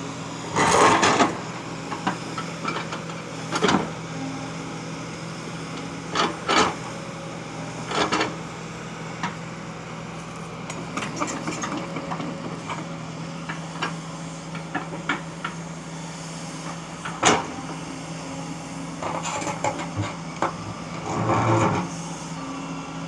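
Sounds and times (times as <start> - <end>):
excavator engine running: 0.0 - 23.0
steel bucket scraping stone: 0.4 - 1.7.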